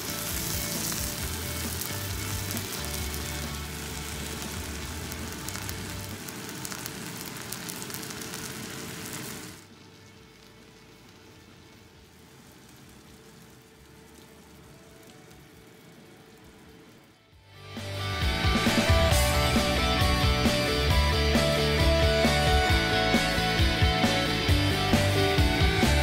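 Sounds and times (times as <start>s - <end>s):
steak sizzling in a frying pan: 0.0s - 15.4s.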